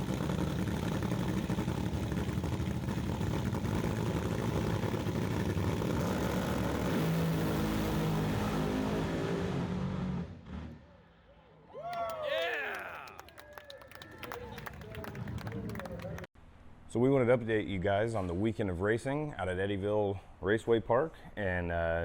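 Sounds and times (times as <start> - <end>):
loud engine running: 0.0 - 9.6.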